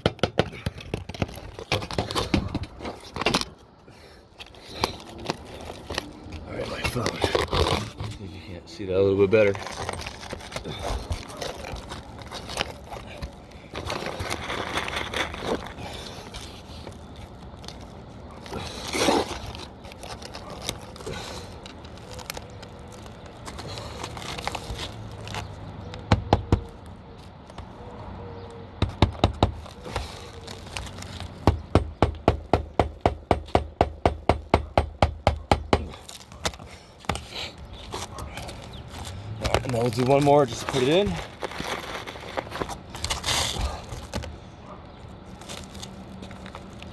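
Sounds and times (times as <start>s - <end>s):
hammer striking roofing nail: 0.0s - 1.1s, 26.1s - 26.7s, 28.8s - 29.6s, 31.4s - 36.0s
roof shingles scraping and crackling: 0.0s - 46.9s.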